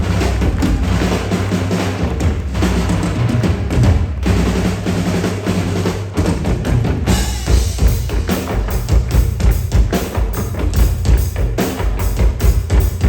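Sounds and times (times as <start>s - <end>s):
deep bass line: 0.0s - 4.6s
drums beating fast rhythm: 0.0s - 13.0s.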